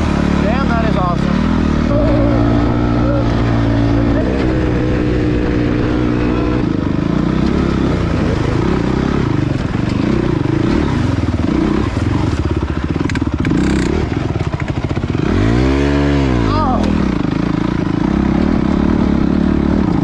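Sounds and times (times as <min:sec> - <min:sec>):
dirt bike engine revving: 0:00.0 - 0:20.0
sharp clicks and clatters: 0:13.0 - 0:14.9.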